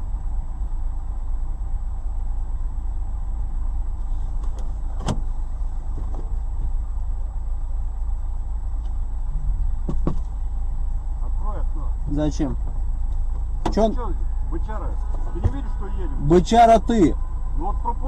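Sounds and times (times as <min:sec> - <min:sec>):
car engine and road noise: 0:00.0 - 0:18.0
sharp clicks inside car: 0:04.3 - 0:05.3, 0:09.8 - 0:10.4.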